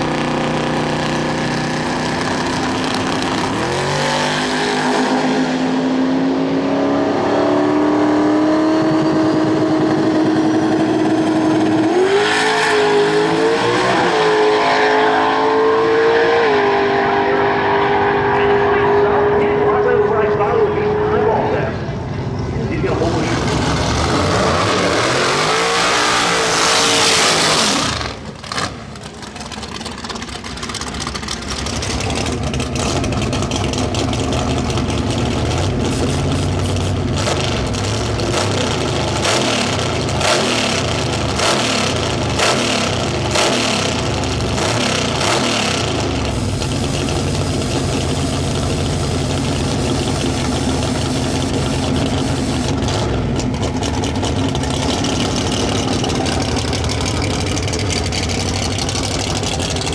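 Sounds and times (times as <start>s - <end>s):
engine idling with throttle blips: 0.0s - 3.9s, 17.9s - 24.3s, 27.6s - 59.9s
high-revving race car engine: 0.0s - 22.0s, 22.7s - 59.9s.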